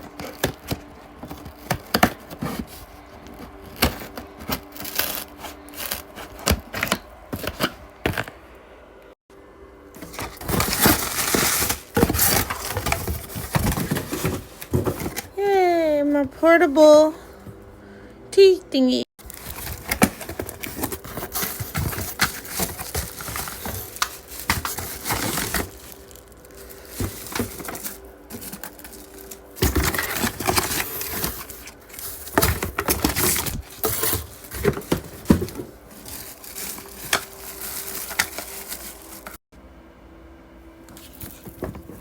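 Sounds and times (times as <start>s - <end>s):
packaging crinkling and rustling: 0.0s - 8.3s, 9.9s - 15.3s, 19.2s - 39.4s.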